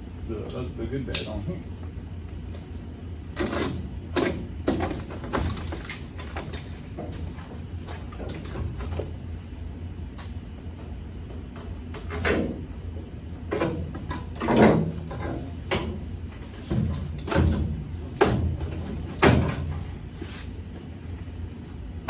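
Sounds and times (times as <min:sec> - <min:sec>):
steady low hum: 0:00.0 - 0:22.0
knocks and clanks on metal: 0:13.5 - 0:19.9.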